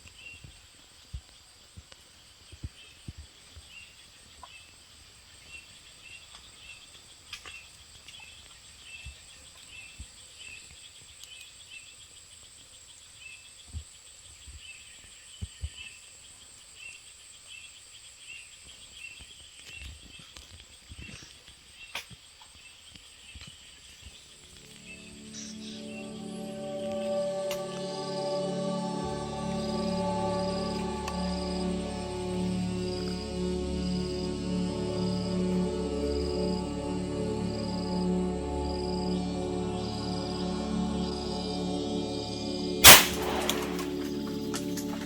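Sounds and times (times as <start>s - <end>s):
insect chirping: 0.0s - 45.0s
high-pitched insect drone: 24.4s - 42.8s.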